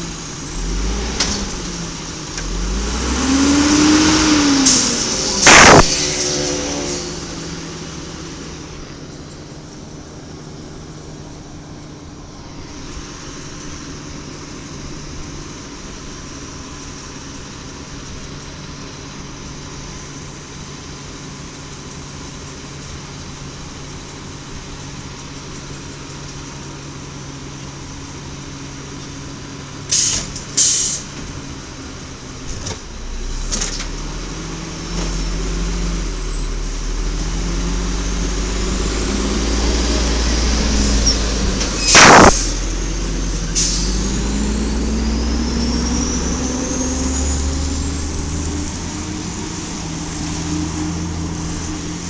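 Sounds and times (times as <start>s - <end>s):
garbage truck engine: 0.0s - 52.0s
air brake hisses: 29.9s - 31.1s, 43.3s - 44.1s.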